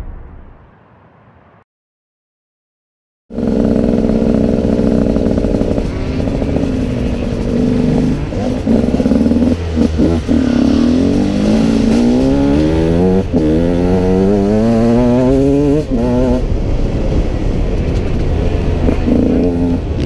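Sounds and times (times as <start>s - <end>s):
two-stroke engine revving: 3.3s - 16.5s, 18.8s - 20.0s.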